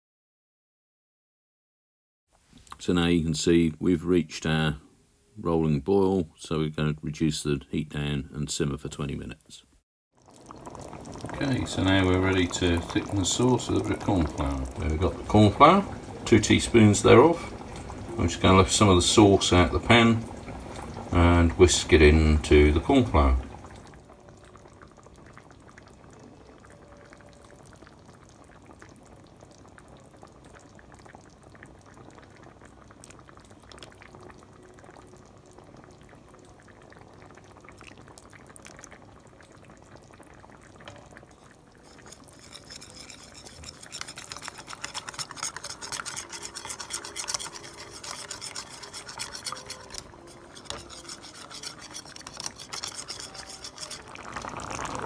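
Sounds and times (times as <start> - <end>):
utensil scraping a container: 41.8 - 54.5.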